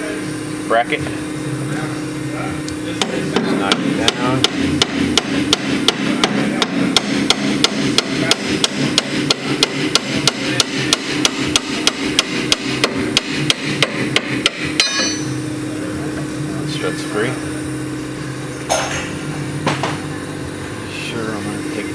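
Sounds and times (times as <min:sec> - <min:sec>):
hammer striking metal: 0:03.0 - 0:15.6.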